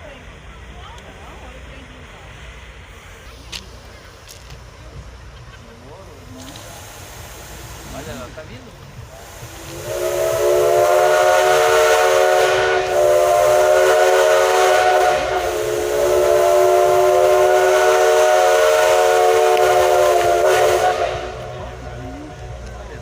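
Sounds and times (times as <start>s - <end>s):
hiss of steam: 0.0s - 23.0s
steam locomotive chime whistle: 9.2s - 22.4s.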